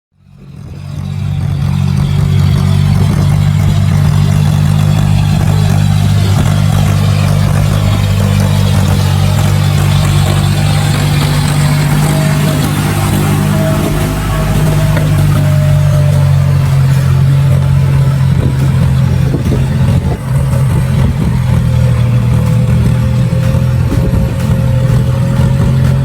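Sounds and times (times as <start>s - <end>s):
tractor engine running: 0.1s - 26.0s.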